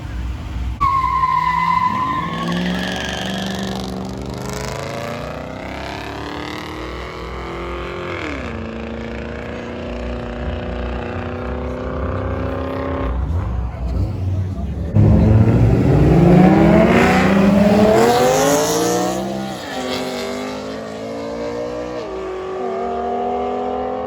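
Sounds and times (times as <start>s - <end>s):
car engine revving: 0.0s - 24.0s
tire squeal: 0.8s - 4.9s, 17.0s - 22.4s.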